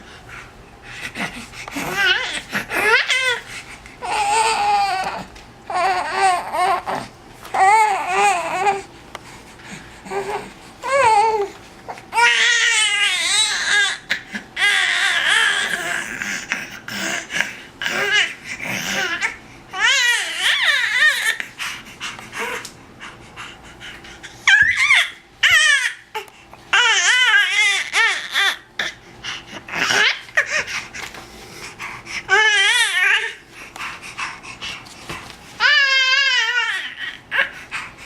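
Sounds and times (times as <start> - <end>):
baby squealing and cooing: 24.4 - 26.0.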